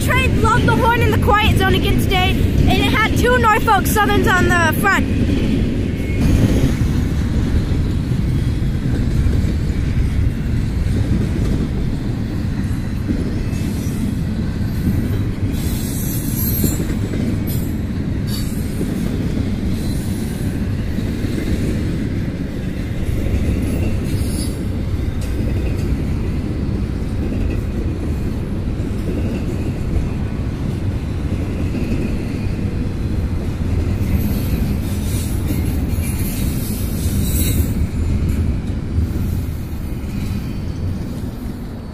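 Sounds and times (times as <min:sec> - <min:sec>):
train wheels rumbling on rails: 0:00.0 - 0:41.9
wheel squeals: 0:34.0 - 0:37.9.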